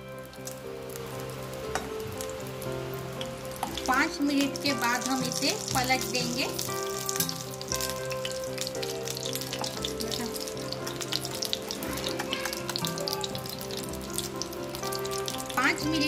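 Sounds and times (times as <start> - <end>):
background music with held tones: 0.0 - 16.0
food sizzling in hot oil: 0.0 - 16.0.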